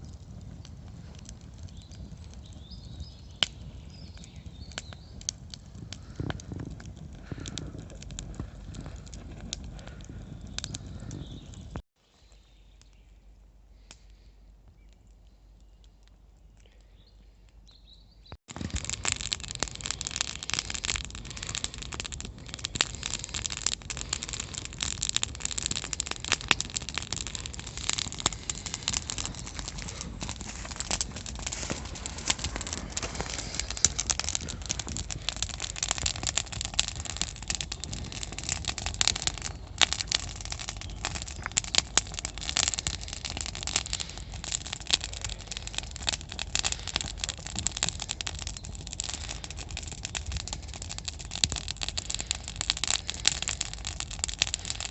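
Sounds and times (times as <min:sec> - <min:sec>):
campfire crackling and popping: 0:00.0 - 0:11.9, 0:17.6 - 0:54.9
low rumble: 0:21.1 - 0:39.9.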